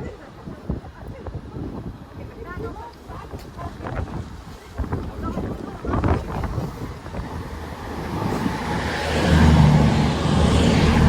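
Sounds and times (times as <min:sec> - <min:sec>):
train approaching: 0:06.5 - 0:11.0.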